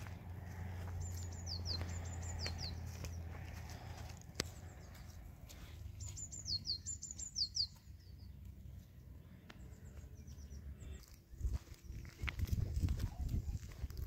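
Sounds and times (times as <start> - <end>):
footsteps on stony ground: 0.0 - 6.8, 9.5 - 14.0
small bird chirping: 0.6 - 8.6.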